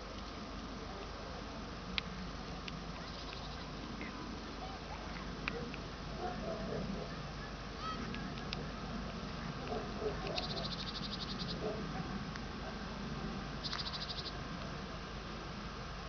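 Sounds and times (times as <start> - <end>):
high rapid ticking trills: 2.8 - 4.8, 10.3 - 11.6, 13.6 - 14.6.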